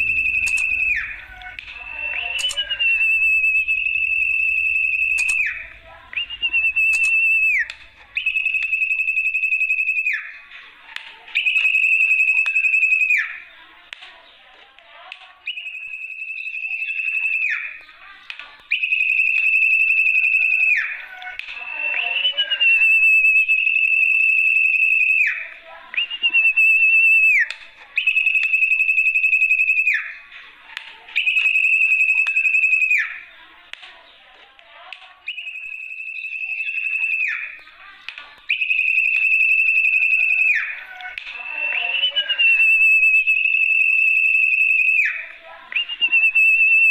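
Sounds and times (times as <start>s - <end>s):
long whistled bird call notes: 0.0s - 10.5s, 15.5s - 17.9s, 18.7s - 30.2s, 35.3s - 37.7s, 38.5s - 46.9s.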